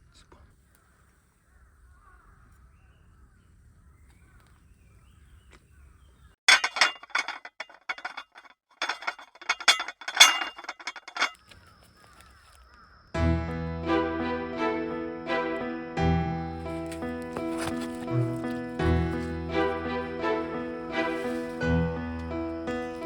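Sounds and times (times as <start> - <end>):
hard objects clinking and rattling: 6.5 - 11.4.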